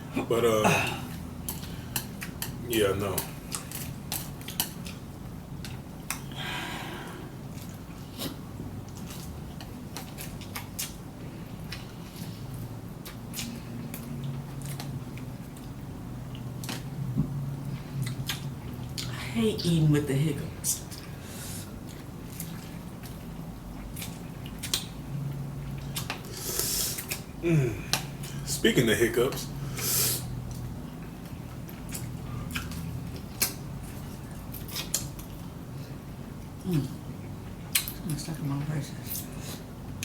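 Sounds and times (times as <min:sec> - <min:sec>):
person chewing noodles: 0:00.8 - 0:06.4, 0:07.0 - 0:16.8, 0:17.6 - 0:19.1, 0:20.9 - 0:28.4, 0:29.7 - 0:38.0
wet mouth clicks: 0:37.7 - 0:38.0.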